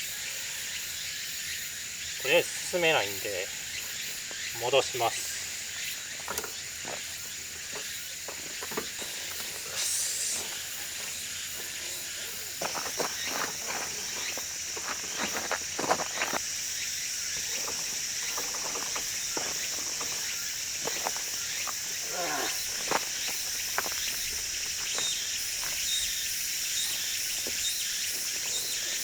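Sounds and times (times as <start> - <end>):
insects buzzing: 0.0 - 29.0
crunches and clicks on gravel: 10.3 - 16.5, 17.3 - 26.2.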